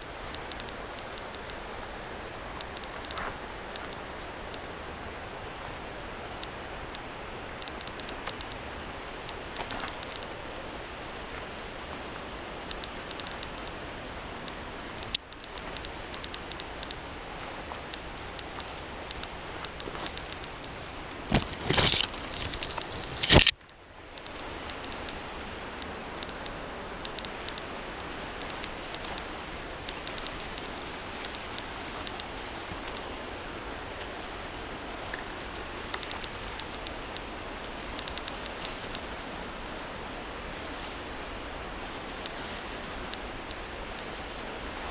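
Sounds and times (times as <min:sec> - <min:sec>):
mountain river rushing: 0:00.0 - 0:44.9.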